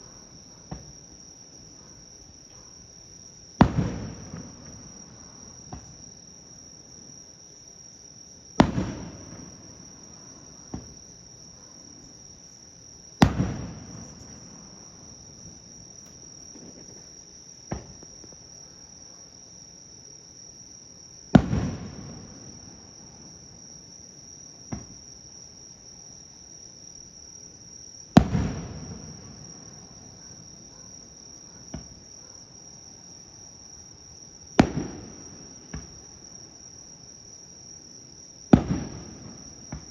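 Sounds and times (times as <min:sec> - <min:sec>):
insects trilling: 0:00.0 - 0:39.9
firework shells bursting: 0:13.2 - 0:18.3
faint firework cracks: 0:13.2 - 0:18.4, 0:34.6 - 0:36.0, 0:38.5 - 0:39.9.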